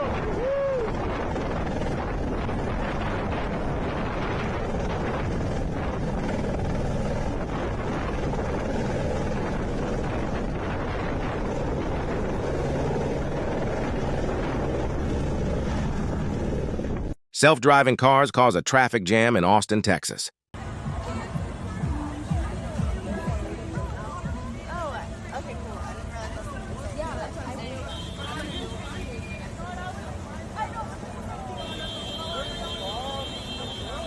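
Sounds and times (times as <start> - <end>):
helicopter rotor and engine: 1.2 - 17.1.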